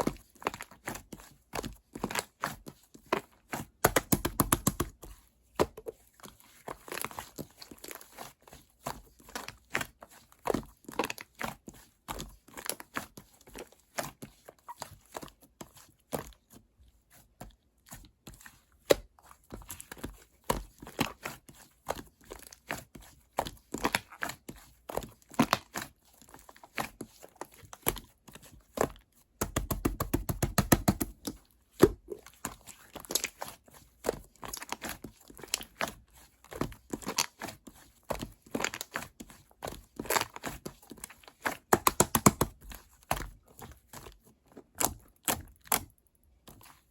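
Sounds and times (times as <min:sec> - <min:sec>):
crackling slime: 0:31.2 - 0:35.9.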